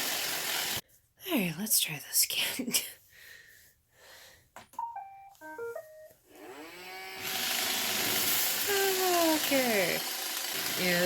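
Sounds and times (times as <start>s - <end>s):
robot vacuum motor whir: 0.0s - 0.8s, 6.3s - 11.0s.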